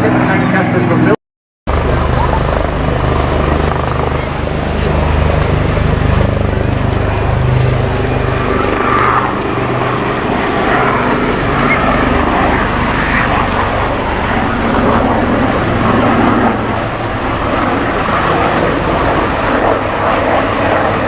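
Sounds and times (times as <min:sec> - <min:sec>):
piston aircraft engines droning: 0:00.0 - 0:21.0.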